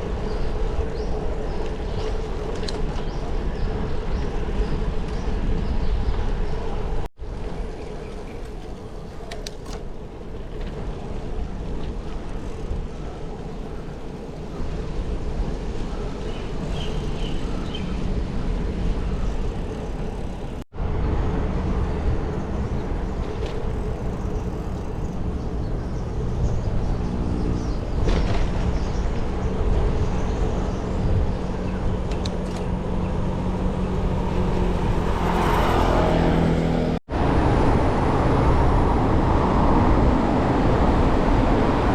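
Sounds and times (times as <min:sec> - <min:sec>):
road noise rumble: 0:00.0 - 0:41.9
vehicles passing: 0:00.0 - 0:41.9.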